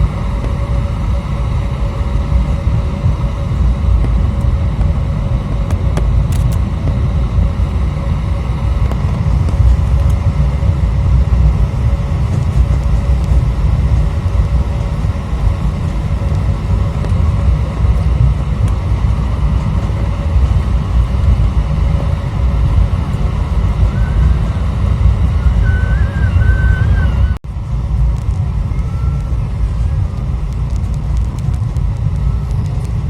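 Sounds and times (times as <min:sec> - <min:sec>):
aircraft cabin engine rumble: 0:00.0 - 0:33.0
faint wavering whistle: 0:23.6 - 0:27.4, 0:28.4 - 0:30.0.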